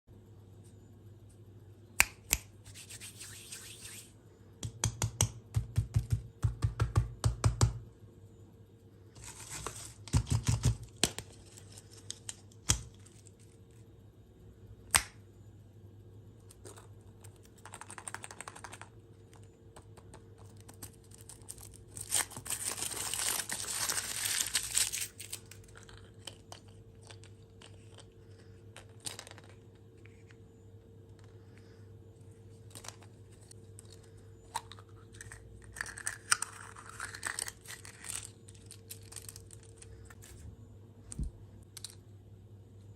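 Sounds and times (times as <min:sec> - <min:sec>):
wrapper crinkling and tearing: 0:20.8 - 0:26.3.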